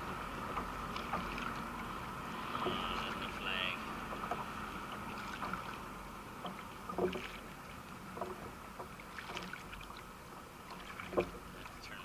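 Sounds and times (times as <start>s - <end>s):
steady background hiss: 0.0s - 9.2s
paddle splashing in water: 0.0s - 12.0s.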